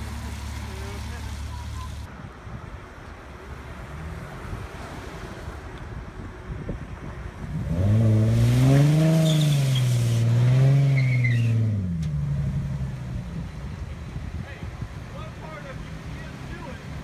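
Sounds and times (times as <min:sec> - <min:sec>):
car engine revving: 0:07.4 - 0:13.7.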